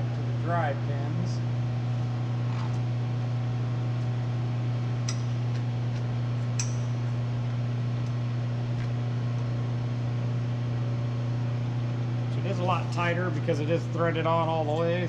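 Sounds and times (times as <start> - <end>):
machinery electrical hum: 0.0 - 15.0.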